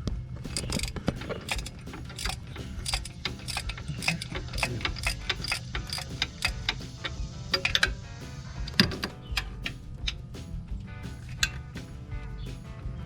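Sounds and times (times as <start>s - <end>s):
ratchet wrench clicking: 0.5s - 8.0s.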